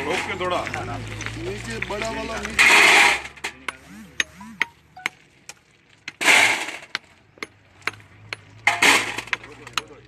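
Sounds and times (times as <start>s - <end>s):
metal tools tapping on gravel: 0.0s - 5.2s.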